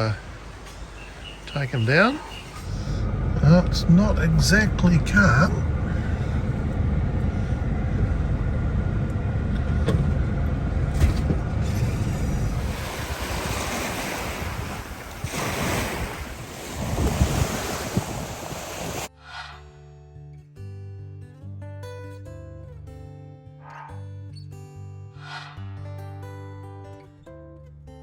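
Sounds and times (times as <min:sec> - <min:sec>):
waves washing and surging: 0:00.0 - 0:06.6, 0:11.0 - 0:19.1
wind buffeting microphone: 0:00.0 - 0:19.1.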